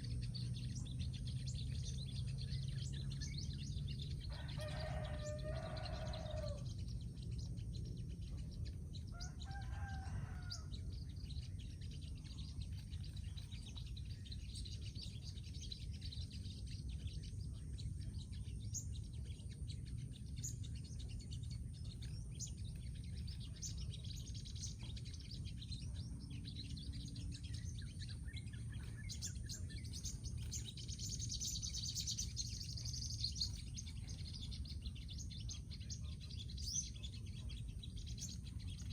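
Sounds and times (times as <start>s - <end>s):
steady low rumble: 0.0s - 4.3s, 10.5s - 38.9s
sunbirds chirping: 0.0s - 38.9s
rooster crowing: 4.2s - 6.7s, 9.1s - 10.9s.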